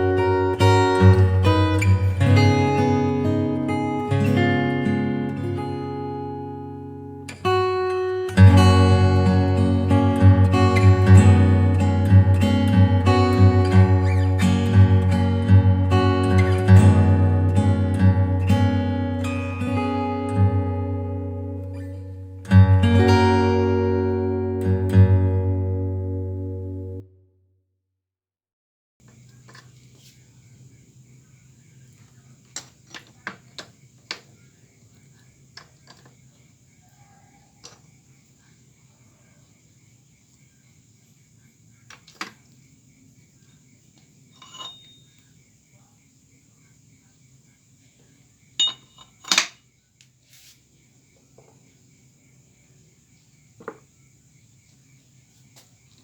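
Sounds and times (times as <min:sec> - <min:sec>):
metal parts clinking: 0:44.3 - 0:45.1, 0:48.6 - 0:49.6.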